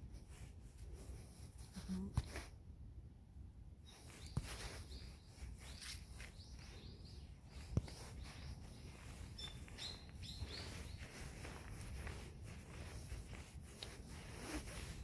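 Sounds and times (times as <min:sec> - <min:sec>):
small birds chirping: 0:03.8 - 0:15.0
bare footsteps on dirt path: 0:04.2 - 0:15.0.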